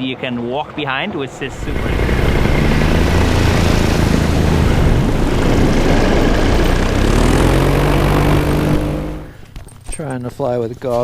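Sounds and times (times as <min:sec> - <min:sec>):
paramotor engine and propeller: 0:01.3 - 0:09.5
wind rush on microphone: 0:01.5 - 0:09.0.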